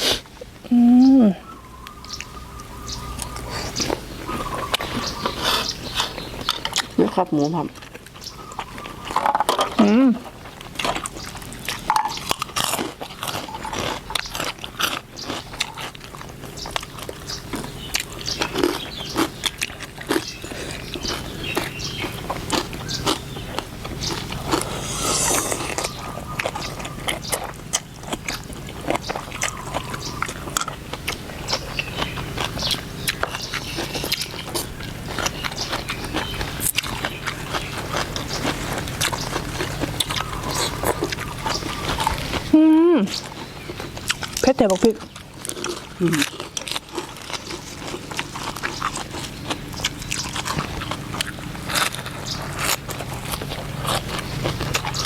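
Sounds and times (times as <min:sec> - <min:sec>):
chewing noodle soup: 0:01.4 - 0:55.0
small clicks and crunches: 0:43.7 - 0:55.0.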